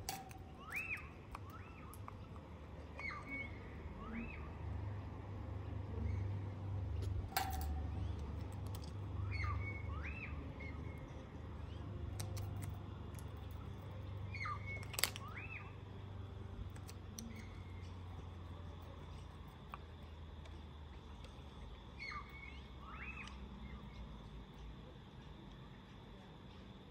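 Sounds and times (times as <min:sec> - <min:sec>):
faint bird chirps: 0:00.1 - 0:05.0, 0:07.4 - 0:12.7, 0:13.5 - 0:15.8, 0:21.3 - 0:26.0.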